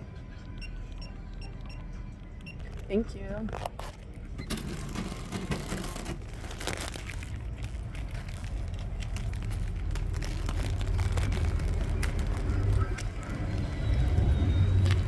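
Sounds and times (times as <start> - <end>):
rustling and clicking handling noise: 2.4 - 14.1
low steady rumble: 6.3 - 15.0.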